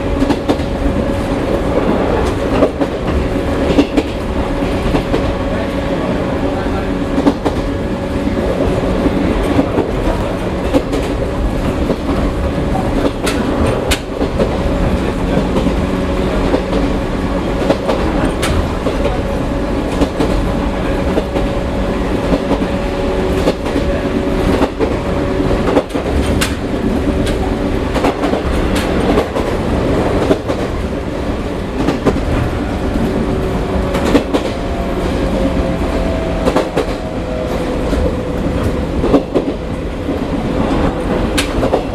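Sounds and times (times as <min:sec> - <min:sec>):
wheels clacking over rail joints: 0:22.2 - 0:41.9.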